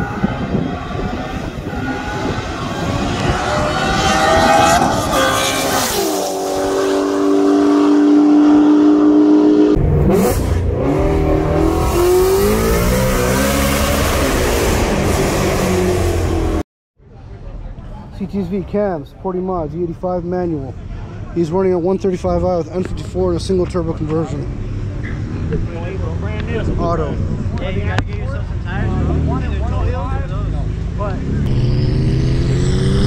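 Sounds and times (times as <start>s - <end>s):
cars accelerating and revving: 0.0s - 16.6s, 23.2s - 33.0s.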